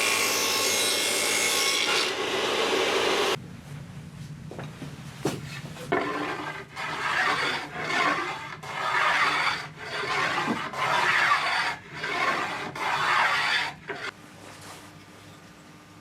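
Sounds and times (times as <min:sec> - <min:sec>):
hand tool rasping strokes: 0:06.0 - 0:14.1.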